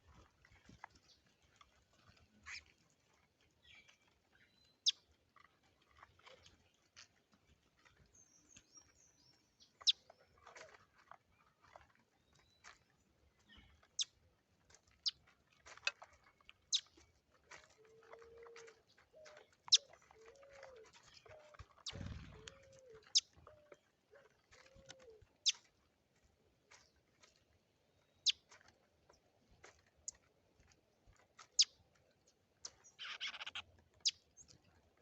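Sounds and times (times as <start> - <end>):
birds chirping: 17.8 - 23.8, 31.5 - 34.6
high bird twittering: 32.9 - 34.2.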